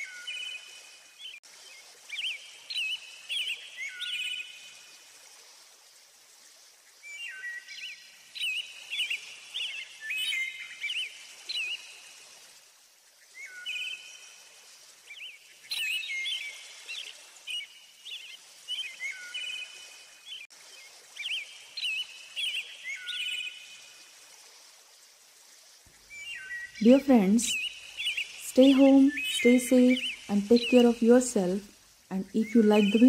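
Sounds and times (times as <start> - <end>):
faint steady hiss: 0.0 - 33.0
songbirds singing: 2.1 - 4.6, 7.0 - 11.9, 15.1 - 19.7, 21.2 - 23.7, 25.9 - 33.0.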